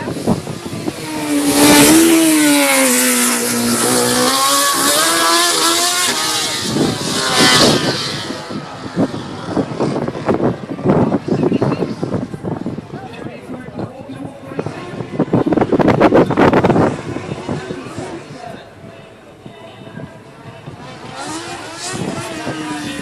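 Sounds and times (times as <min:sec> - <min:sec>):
racing car engine passing: 0:00.1 - 0:12.3.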